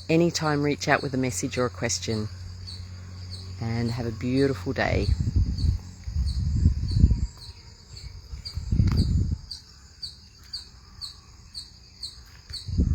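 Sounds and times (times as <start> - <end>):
crickets chirping: 0.0 - 12.9
low rumble on microphone: 2.3 - 9.6, 12.5 - 12.9.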